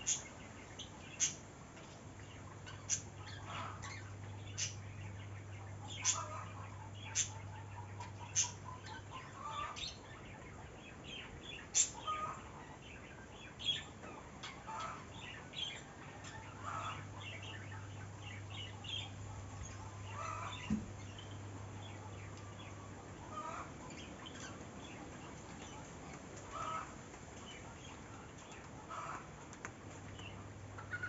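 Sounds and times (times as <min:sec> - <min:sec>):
birds chirping: 0:00.0 - 0:31.0
steady low hum: 0:00.0 - 0:31.0.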